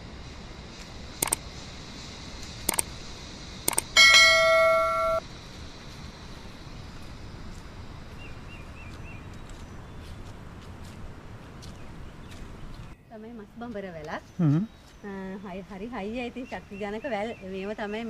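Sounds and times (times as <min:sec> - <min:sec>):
sharp clicks: 0:01.2 - 0:01.4, 0:02.6 - 0:02.9, 0:03.6 - 0:04.0
loud bell-like ding: 0:04.0 - 0:05.2.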